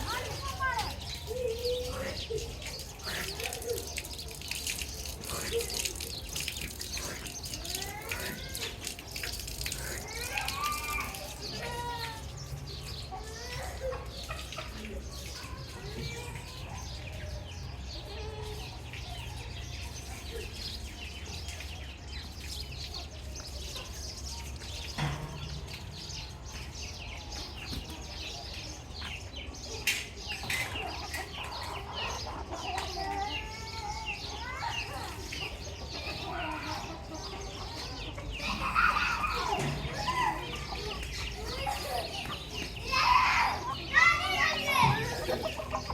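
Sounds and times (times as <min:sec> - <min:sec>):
chicks peeping: 0:16.5 - 0:43.0, 0:43.6 - 0:45.9.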